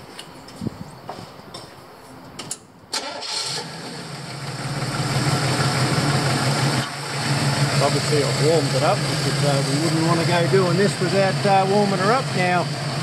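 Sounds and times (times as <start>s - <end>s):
car engine starting and running: 2.9s - 13.0s.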